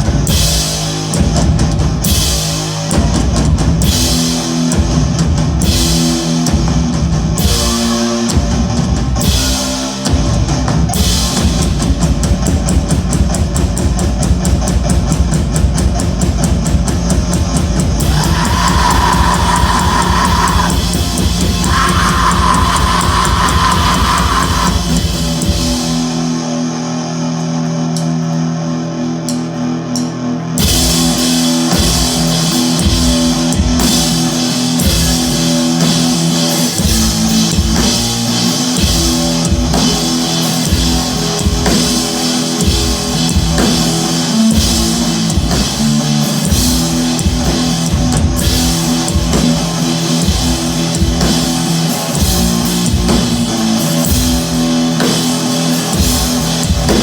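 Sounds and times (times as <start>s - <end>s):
live rock band playing: 0.0s - 15.8s, 30.6s - 57.0s.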